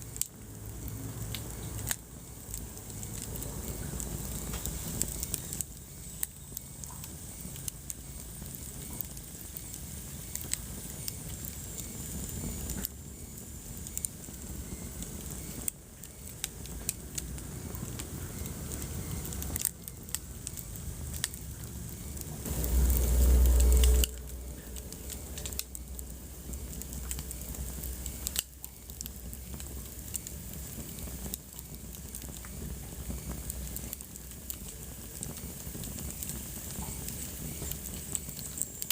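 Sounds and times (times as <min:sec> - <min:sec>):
wood fire crackling: 0:00.0 - 0:38.9
loud low rumble: 0:21.8 - 0:28.2.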